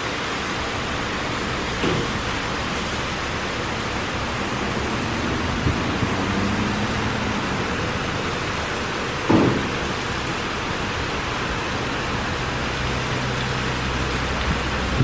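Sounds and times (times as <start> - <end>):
car wash spraying water: 0.0 - 15.0.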